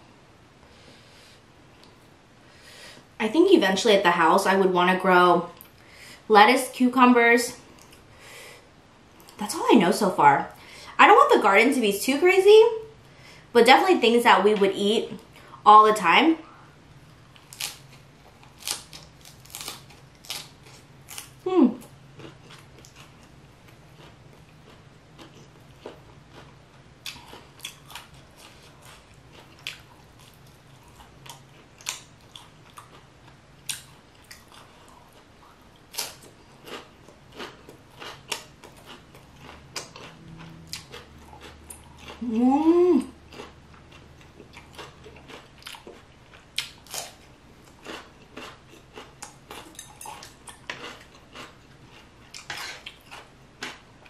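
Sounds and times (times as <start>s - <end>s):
person chewing and crunching: 17.3s - 54.0s
person humming: 21.5s - 21.9s, 42.2s - 43.2s.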